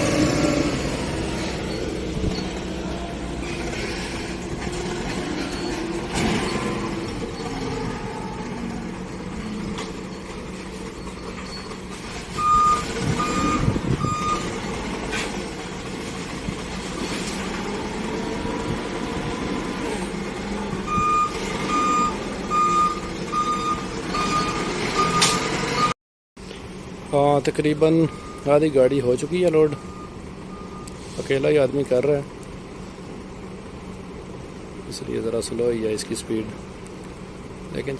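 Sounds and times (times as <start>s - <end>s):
engine hum: 0.0s - 37.9s
reversing alarm beeping: 9.7s - 14.5s, 20.9s - 26.0s, 27.9s - 28.7s, 29.5s - 31.0s.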